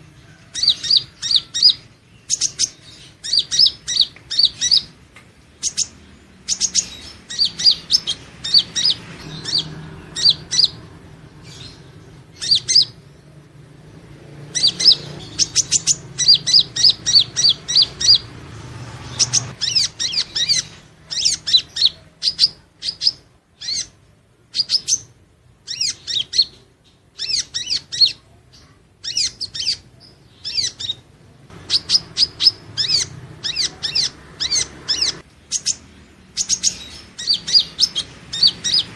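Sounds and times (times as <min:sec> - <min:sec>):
bird chirping high notes: 0:05.6 - 0:24.0, 0:29.0 - 0:38.9.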